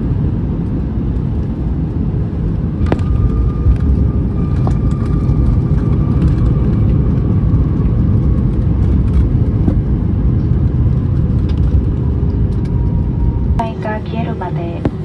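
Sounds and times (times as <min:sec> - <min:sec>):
airliner engine and wheels rumble: 0:00.0 - 0:15.0
faint steady whine: 0:12.5 - 0:15.0.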